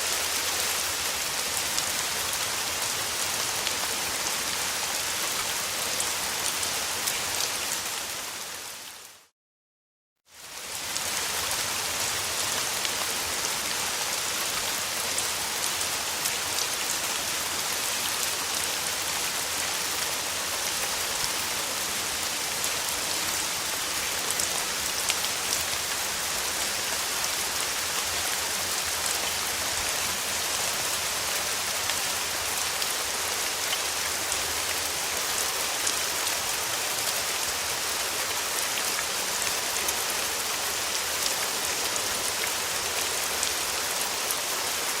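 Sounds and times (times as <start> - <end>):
steady rain hiss: 0.0 - 9.3, 10.3 - 45.0.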